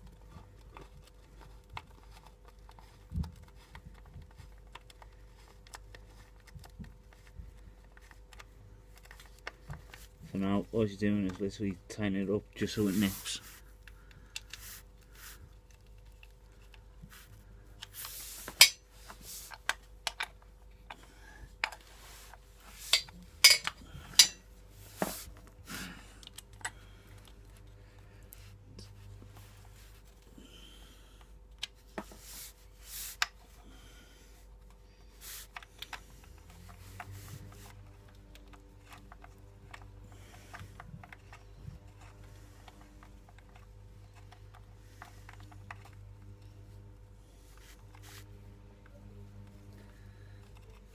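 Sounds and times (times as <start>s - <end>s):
hand tools clinking on metal: 23.4s - 24.4s.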